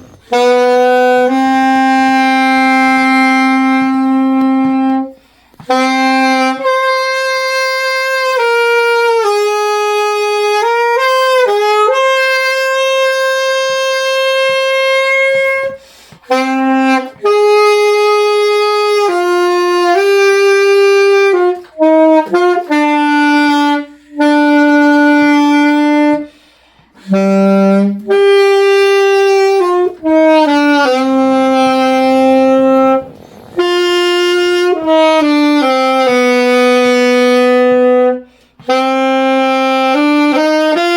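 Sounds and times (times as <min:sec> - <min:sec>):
saxophone playing slow melody: 0:00.0 - 0:40.9.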